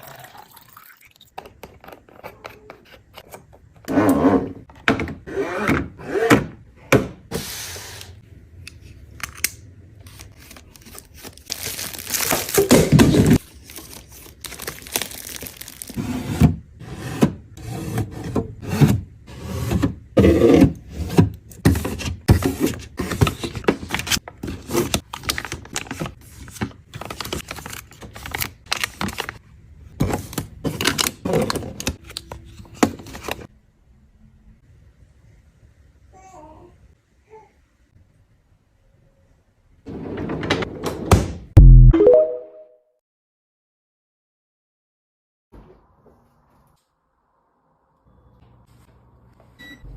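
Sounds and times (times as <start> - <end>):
plastic packaging crinkling: 10.0 - 16.0.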